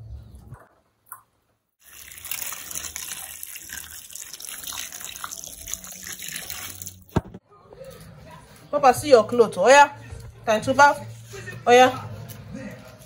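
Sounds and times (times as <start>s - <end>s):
water running from a tap: 1.8s - 7.1s.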